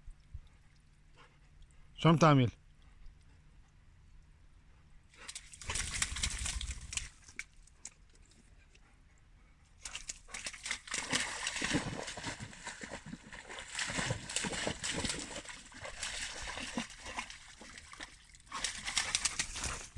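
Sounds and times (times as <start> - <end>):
dog splashing through water: 5.1 - 8.3, 9.8 - 19.9.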